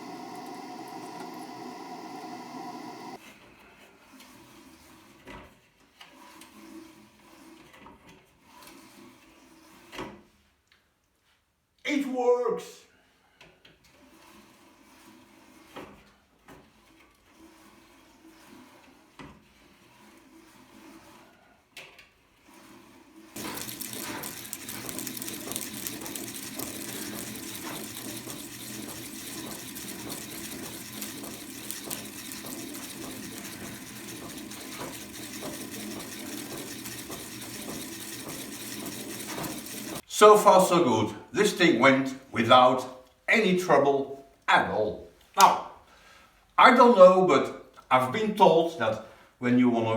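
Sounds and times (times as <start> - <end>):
wire spooling machine whirring: 0.0 - 3.2, 23.3 - 40.7.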